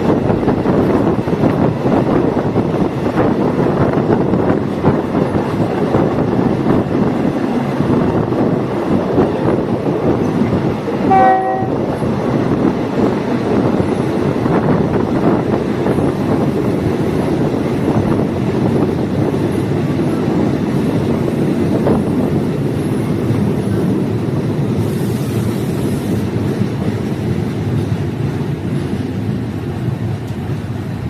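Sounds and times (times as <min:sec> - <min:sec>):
train wheels rumbling on rails: 0:00.0 - 0:31.0
train horn blast: 0:11.0 - 0:11.9.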